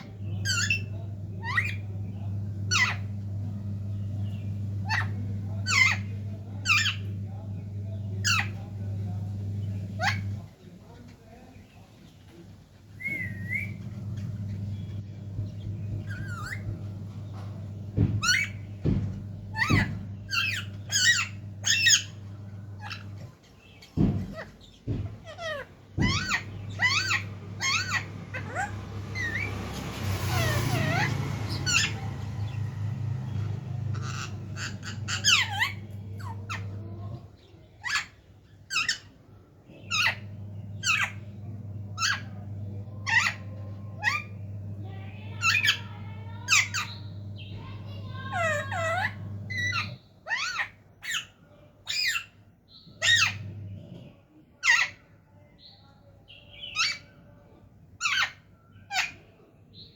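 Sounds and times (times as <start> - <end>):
parrot calling: 0.0 - 10.6, 12.9 - 39.2, 39.8 - 41.3, 41.9 - 53.5, 54.6 - 55.1, 56.6 - 57.2, 58.0 - 59.3
low steady hum: 0.0 - 11.6, 39.7 - 50.0
steady low hum: 0.0 - 37.8, 38.4 - 50.0
parrot squawk: 25.3 - 29.5, 30.1 - 36.7, 48.0 - 52.3.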